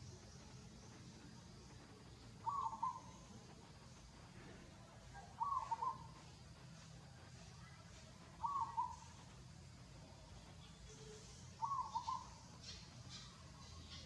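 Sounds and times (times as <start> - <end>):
faint low hum: 0.0 - 14.0
bird calling: 2.1 - 3.4, 5.2 - 6.4, 8.4 - 9.2, 10.9 - 14.0.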